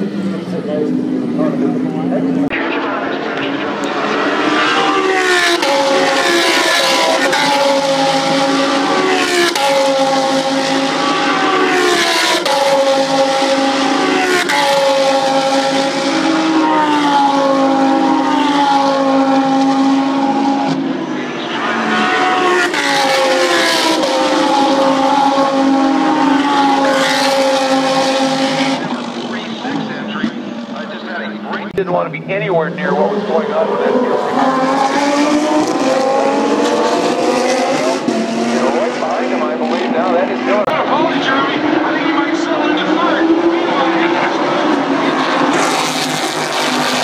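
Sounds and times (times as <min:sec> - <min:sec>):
race car engine at high revs: 0:00.0 - 0:47.0.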